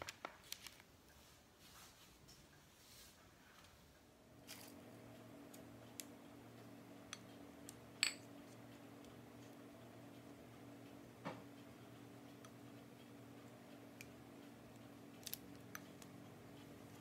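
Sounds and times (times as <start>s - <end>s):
low hum: 4.2s - 17.0s
ringing clink: 8.0s - 8.3s.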